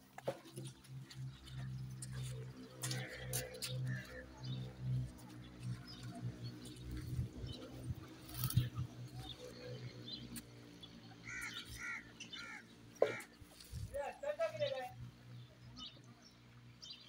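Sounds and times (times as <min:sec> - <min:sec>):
short bird calls: 0:11.2 - 0:13.9.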